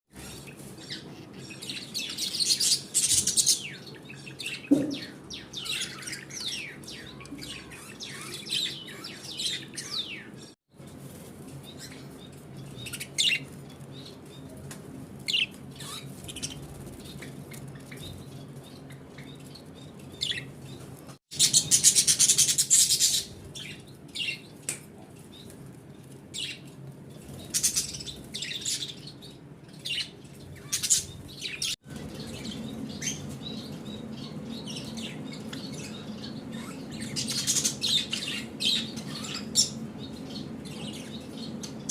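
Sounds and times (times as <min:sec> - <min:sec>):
parrots chirping and calling: 0:29.8 - 0:41.9.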